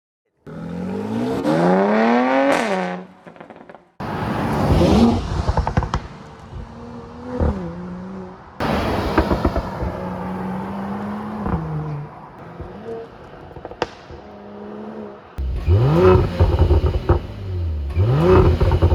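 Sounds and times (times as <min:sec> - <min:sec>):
car engine revving: 0:00.5 - 0:18.9
exhaust crackles and pops: 0:04.5 - 0:06.7, 0:08.6 - 0:10.7, 0:15.4 - 0:18.9.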